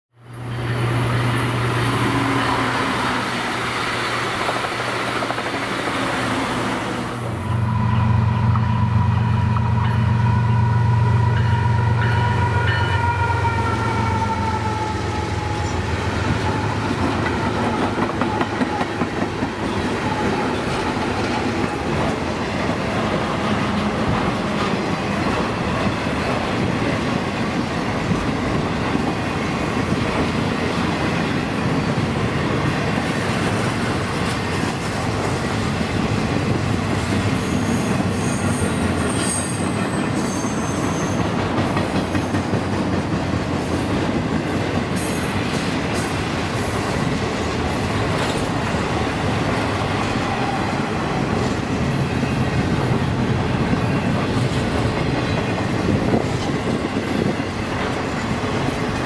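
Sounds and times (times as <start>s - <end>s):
diesel locomotive engines droning: 0.2s - 59.0s
train horn chord: 6.4s - 18.8s
wheels clattering on rail: 15.5s - 50.6s, 51.2s - 59.0s.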